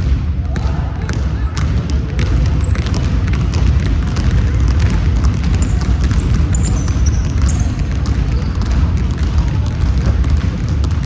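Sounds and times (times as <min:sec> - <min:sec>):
ball bouncing on gym floor: 0:00.0 - 0:11.0
low rumble of hall: 0:00.0 - 0:11.0
sneaker squeaks: 0:01.4 - 0:03.6, 0:05.4 - 0:09.3.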